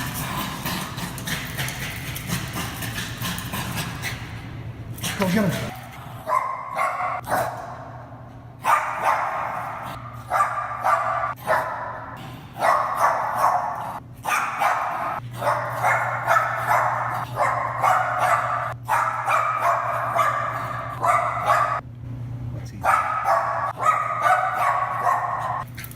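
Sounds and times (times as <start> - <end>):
dog barking excitedly: 5.0 - 7.8, 8.6 - 21.8, 22.8 - 25.8.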